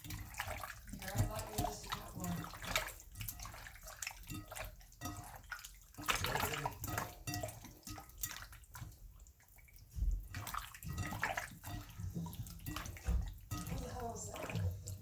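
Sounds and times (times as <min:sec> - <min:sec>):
water splashing and dripping: 0:00.0 - 0:15.0.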